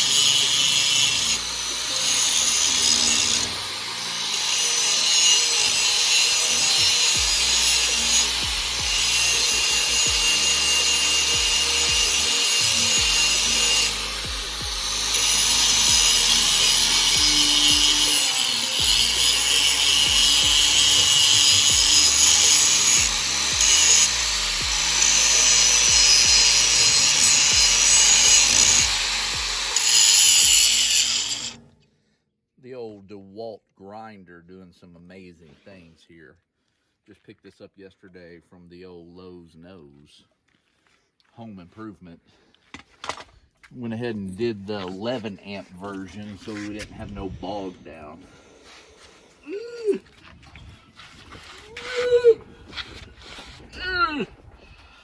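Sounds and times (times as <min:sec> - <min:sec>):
angle grinder grinding steel: 0:00.0 - 0:31.7.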